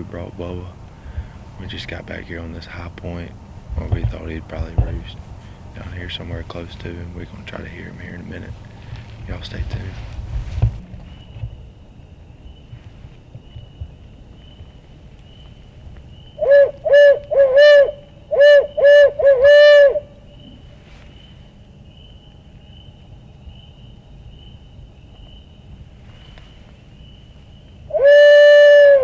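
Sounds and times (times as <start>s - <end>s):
owl call hooting: 16.2s - 21.6s, 26.4s - 29.0s.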